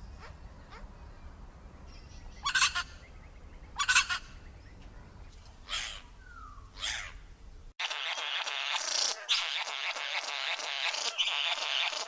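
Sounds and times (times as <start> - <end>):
bird calling: 5.6 - 7.2, 7.8 - 12.0.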